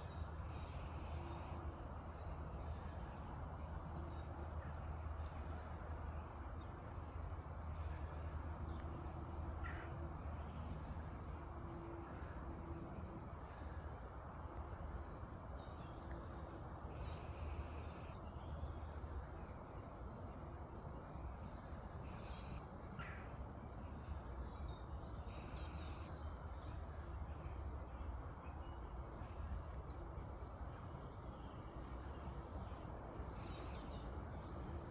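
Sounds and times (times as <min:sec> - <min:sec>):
low outdoor rumble: 0:00.0 - 0:34.9
birds singing: 0:11.8 - 0:21.0, 0:21.7 - 0:27.4, 0:28.0 - 0:34.9.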